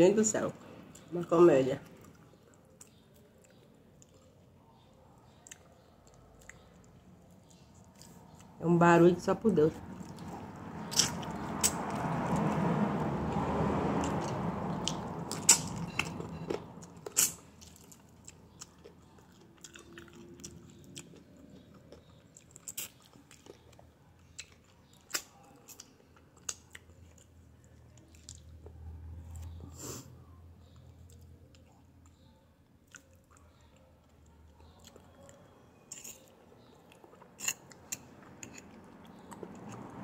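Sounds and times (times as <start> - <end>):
street noise: 0.0 - 19.6, 33.4 - 40.0
biting and chewing meat: 9.8 - 12.8, 13.6 - 29.6.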